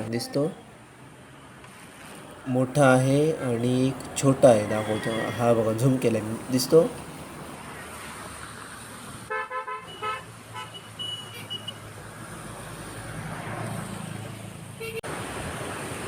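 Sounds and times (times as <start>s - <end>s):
low engine hum: 2.0s - 7.6s
vehicle horn tooting: 9.3s - 11.8s, 14.8s - 15.0s.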